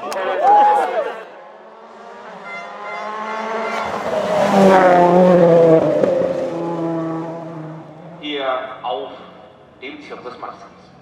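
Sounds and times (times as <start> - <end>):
rally car passing at speed: 1.3 - 9.7.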